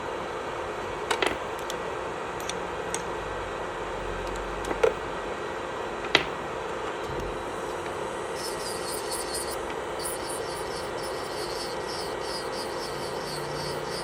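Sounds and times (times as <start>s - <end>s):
electric nail drill whirring: 7.5s - 14.0s.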